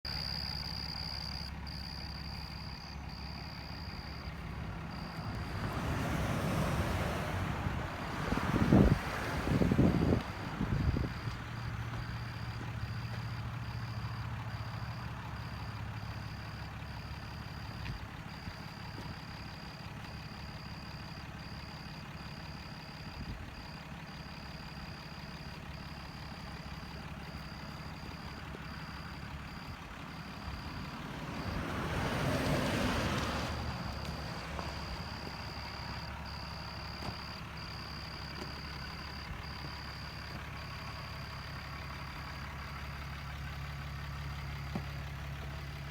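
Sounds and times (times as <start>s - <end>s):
truck engine humming: 0.0s - 45.9s
vehicle passing: 2.2s - 15.7s, 27.5s - 42.3s.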